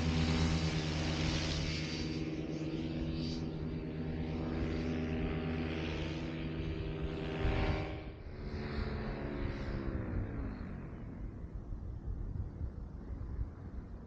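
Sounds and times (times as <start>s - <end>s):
paramotor engine and propeller: 0.0s - 14.0s
wind gusts on microphone: 0.0s - 14.0s.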